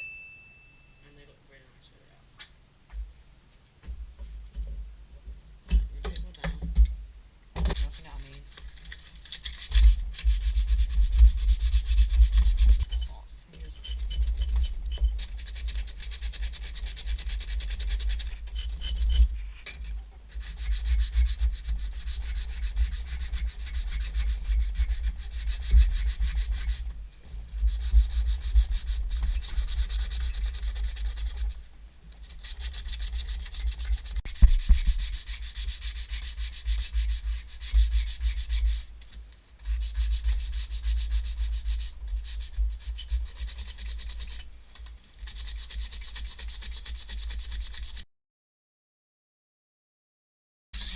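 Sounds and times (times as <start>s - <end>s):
sandpaper rubbing on wood: 7.7s - 12.9s, 13.6s - 19.5s, 20.3s - 26.9s, 27.5s - 31.6s, 32.2s - 38.9s, 39.6s - 44.4s, 45.2s - 48.0s.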